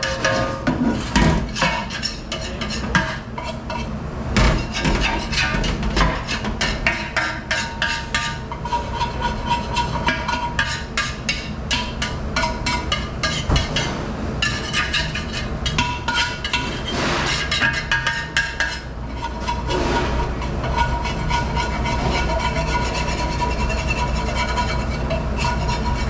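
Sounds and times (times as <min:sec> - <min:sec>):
dishes and utensils clattering: 0:00.0 - 0:26.0
low machine rumble: 0:13.0 - 0:17.6, 0:18.9 - 0:26.0.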